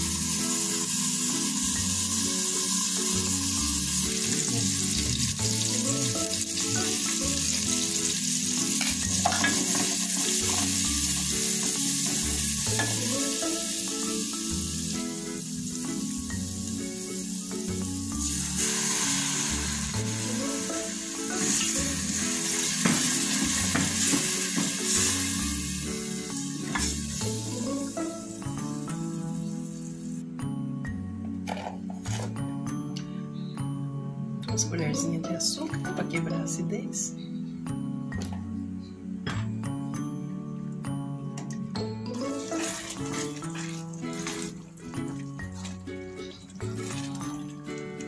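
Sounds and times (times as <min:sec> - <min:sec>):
onion sizzling in a pot: 0:00.0 - 0:30.2, 0:42.2 - 0:47.8
background music: 0:00.0 - 0:48.0.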